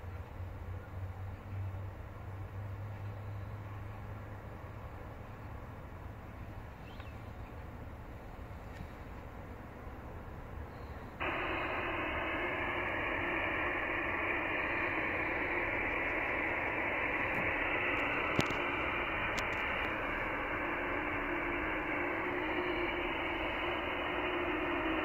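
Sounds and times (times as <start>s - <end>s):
radio receiver hiss: 10.7s - 25.0s.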